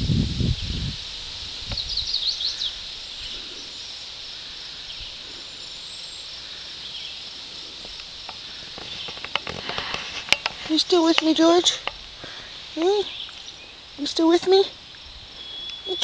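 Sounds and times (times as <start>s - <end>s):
steady high hiss: 0.0s - 16.0s
small bird chirping: 1.5s - 9.8s, 10.6s - 16.0s.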